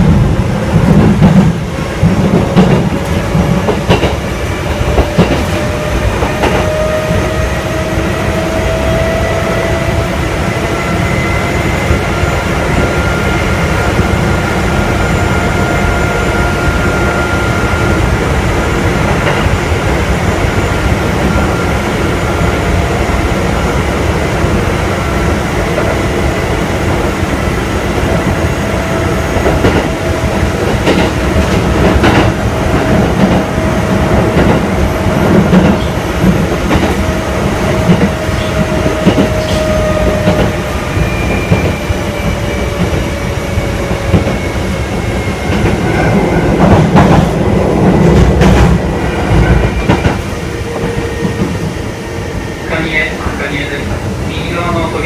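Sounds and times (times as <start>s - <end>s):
train wheels rumbling on rail: 0.0s - 55.0s
clacks over rail joints: 0.9s - 4.2s, 4.8s - 5.6s.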